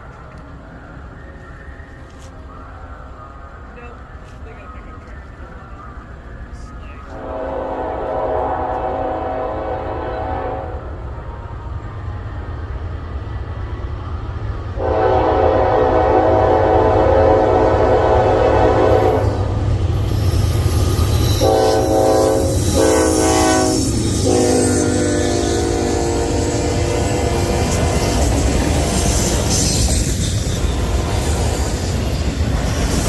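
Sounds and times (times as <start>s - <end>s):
locomotive air horn: 7.1s - 10.8s, 14.8s - 19.5s, 21.3s - 28.2s.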